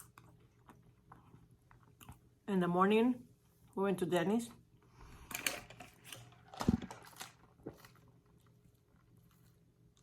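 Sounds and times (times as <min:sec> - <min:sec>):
person chewing food: 0:00.0 - 0:02.3.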